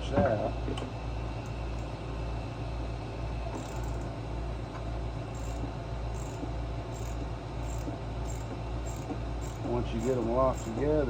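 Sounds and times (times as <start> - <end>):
steady low hum: 0.0 - 11.0
cricket chirping: 6.2 - 6.4.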